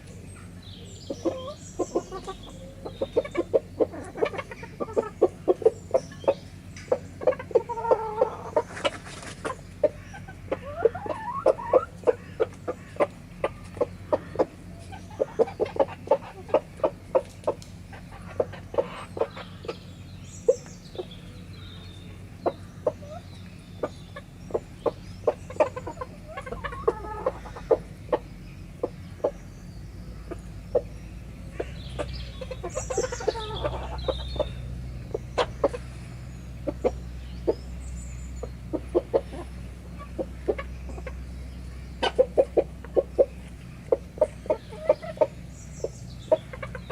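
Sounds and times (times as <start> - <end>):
chickens clucking: 0.0 - 46.9
chickens pecking clicks: 16.8 - 17.8.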